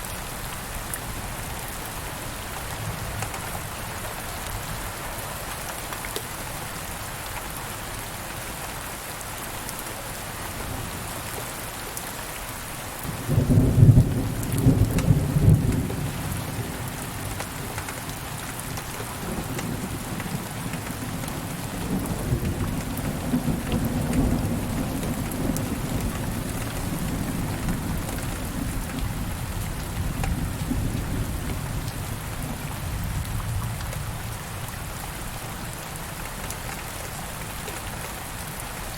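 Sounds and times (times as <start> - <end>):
steady rain falling: 0.0 - 38.9
thunder clap and rumble: 13.2 - 17.9, 19.2 - 34.3.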